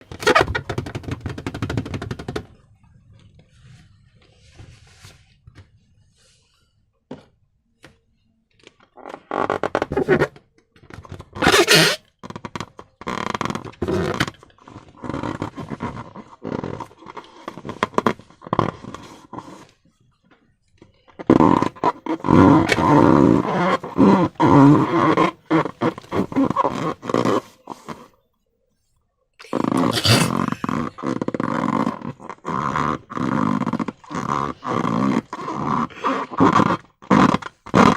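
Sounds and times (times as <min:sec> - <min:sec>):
balloons scraping and rubbing: 0:00.0 - 0:02.6, 0:09.0 - 0:19.8, 0:21.1 - 0:28.1, 0:29.4 - 0:37.9
slime squelching: 0:29.4 - 0:31.1.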